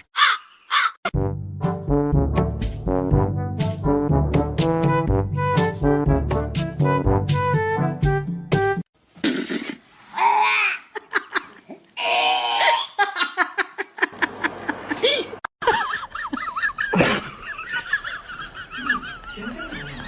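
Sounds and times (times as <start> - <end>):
people laughing: 13.0 - 20.0.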